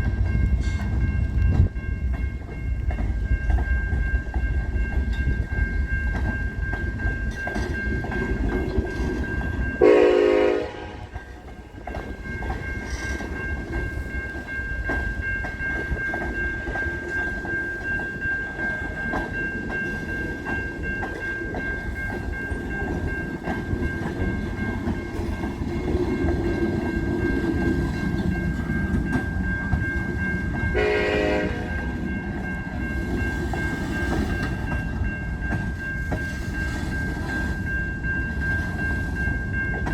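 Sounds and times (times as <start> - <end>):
freight train rumbling: 0.0 - 39.9
locomotive horn blasts: 9.8 - 11.2, 30.8 - 31.8.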